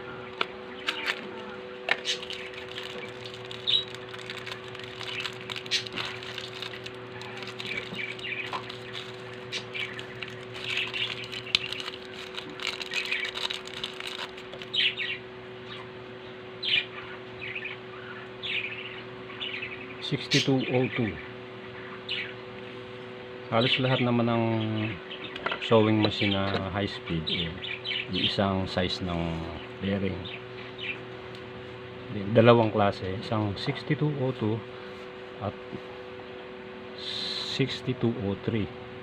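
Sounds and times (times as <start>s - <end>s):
steady low hum: 0.0s - 39.0s
small birds chirping: 1.9s - 22.8s, 26.1s - 28.5s, 29.4s - 31.1s.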